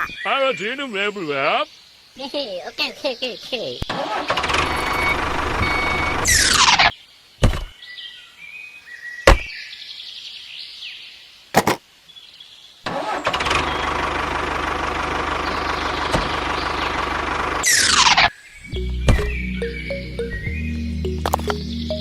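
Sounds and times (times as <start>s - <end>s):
vehicle engine running: 13.5s - 17.7s, 18.8s - 22.0s.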